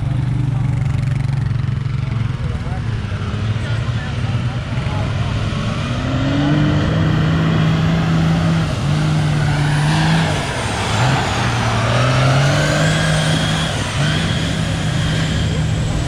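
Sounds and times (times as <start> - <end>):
truck engine running hard: 0.0 - 16.0
faint whine gliding up and down: 6.6 - 16.0.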